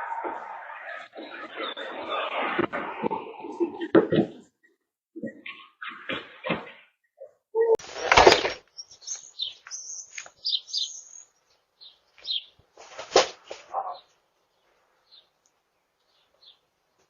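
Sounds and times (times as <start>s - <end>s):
small birds chirping: 7.2s - 17.0s.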